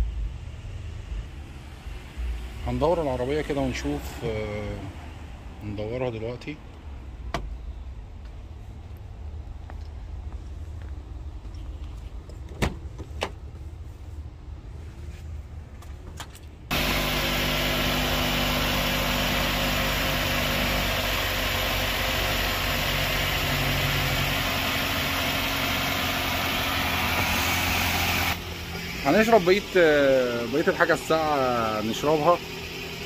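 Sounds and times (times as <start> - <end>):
car engine idling: 16.7 - 33.0.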